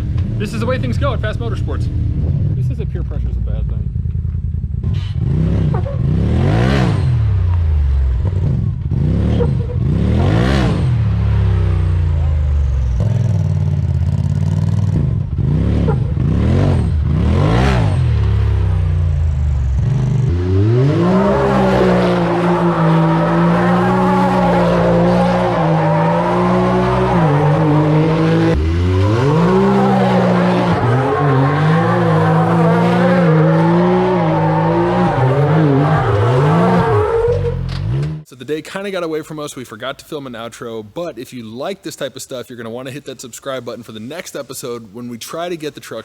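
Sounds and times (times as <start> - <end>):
utility vehicle engine revving: 0.0 - 38.3.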